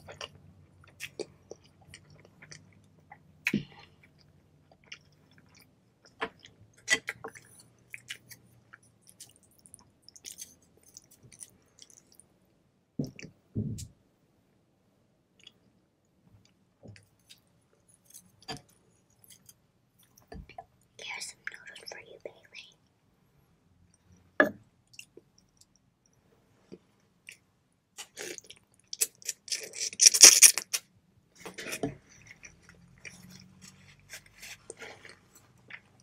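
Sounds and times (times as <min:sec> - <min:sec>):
mouth chewing noodles: 0:28.0 - 0:30.8.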